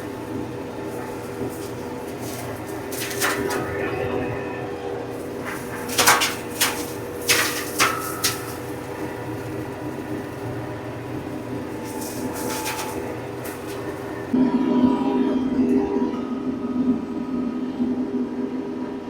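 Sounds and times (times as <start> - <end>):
sharp knocks and cracks: 0.0 - 14.4
tractor engine under load: 0.0 - 14.4.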